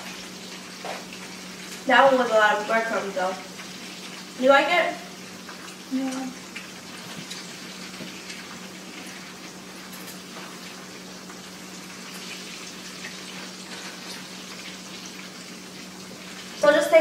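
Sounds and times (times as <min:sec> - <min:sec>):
chicken frying in oil: 0:00.0 - 0:17.0.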